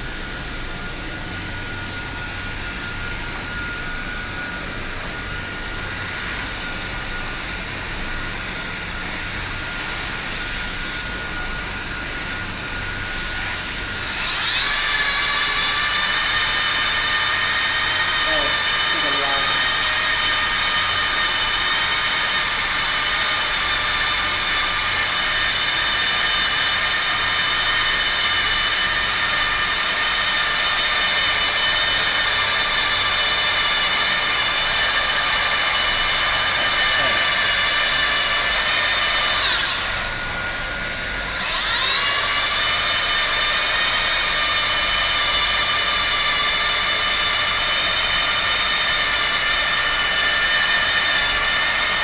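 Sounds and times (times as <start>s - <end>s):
welder motor whine: 0.0s - 52.0s
blower hiss: 8.3s - 23.9s, 25.8s - 42.4s.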